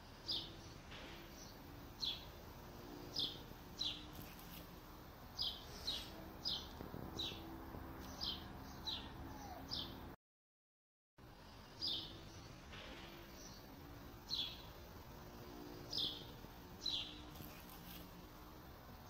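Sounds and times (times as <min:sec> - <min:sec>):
low background noise: 0:00.0 - 0:10.2, 0:11.2 - 0:19.0
songbird chirping: 0:00.2 - 0:02.4, 0:03.0 - 0:10.2, 0:11.7 - 0:18.3.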